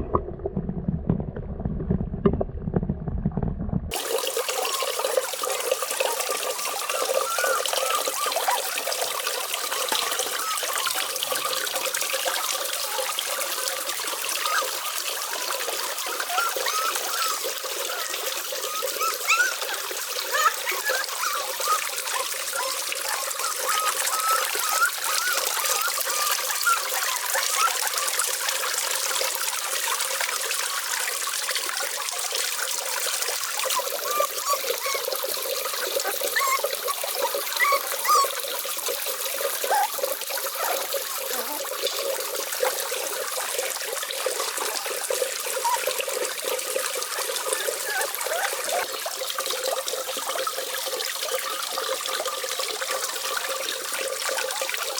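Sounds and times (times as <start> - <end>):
water trickling and splashing: 3.9 - 54.9
small bubbling chirps: 14.4 - 28.7, 33.7 - 42.8.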